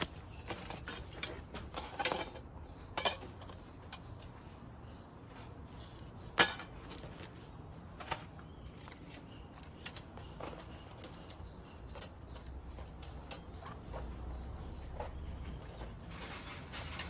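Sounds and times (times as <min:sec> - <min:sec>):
metal parts clicking and tapping: 0:00.0 - 0:05.0, 0:06.3 - 0:07.3, 0:08.7 - 0:17.0.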